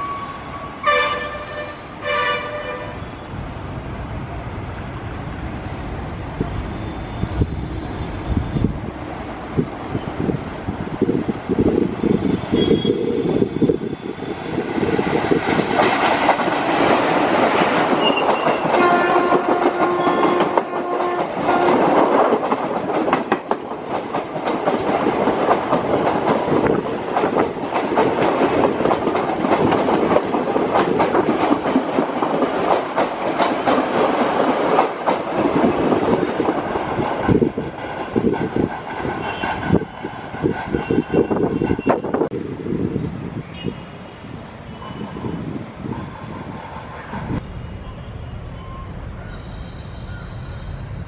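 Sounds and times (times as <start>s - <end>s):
train horn: 0.0s - 3.2s, 18.0s - 22.0s, 39.2s - 39.8s
train passing with rumble: 0.0s - 51.0s
wheels clacking over rail joints: 15.3s - 41.1s.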